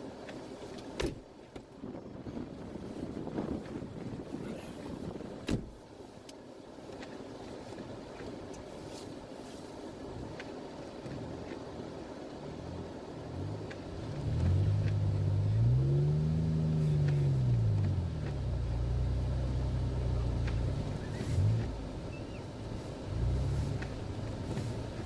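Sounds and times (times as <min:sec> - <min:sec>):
vehicle engine revving: 0:11.0 - 0:25.0.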